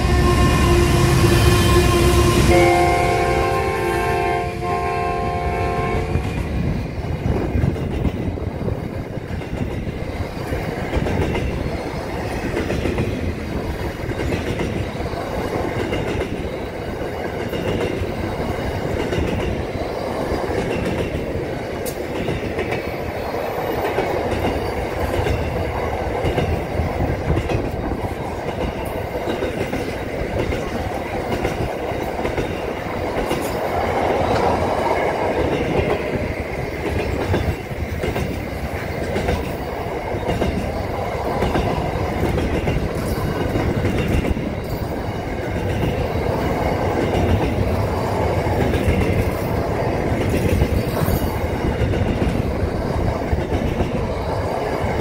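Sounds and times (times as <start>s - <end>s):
train wheels clattering over rail joints: 6.0s - 55.0s.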